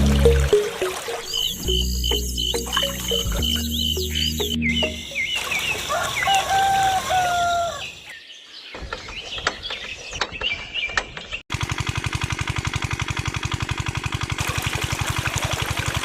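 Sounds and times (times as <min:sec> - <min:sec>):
small birds chirping: 0:00.0 - 0:11.4
rooster crowing: 0:05.8 - 0:08.0
small engine chugging: 0:11.5 - 0:16.0.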